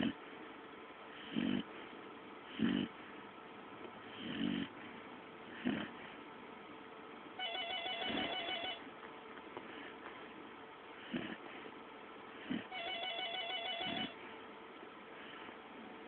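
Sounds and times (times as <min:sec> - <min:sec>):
dog snoring: 0:00.0 - 0:00.2, 0:01.1 - 0:01.8, 0:02.4 - 0:03.0, 0:04.0 - 0:06.2, 0:07.9 - 0:08.6, 0:11.0 - 0:11.6, 0:12.3 - 0:14.2
warbling electronic tone: 0:07.4 - 0:08.8.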